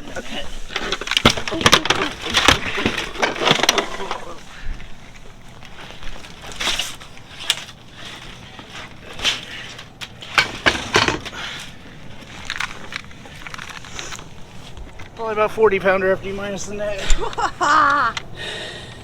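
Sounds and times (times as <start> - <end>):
rustling and knocking of handling: 0.6 - 15.4.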